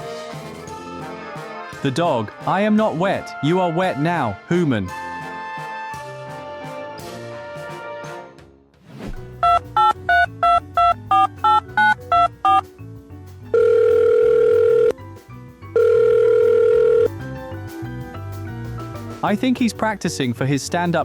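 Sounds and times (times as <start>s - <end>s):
background music: 0.0s - 21.0s
keypad beeps: 9.4s - 12.6s, 13.6s - 14.9s, 15.8s - 17.1s
telephone ringing tones: 9.4s - 12.6s, 13.5s - 15.0s, 15.8s - 17.1s.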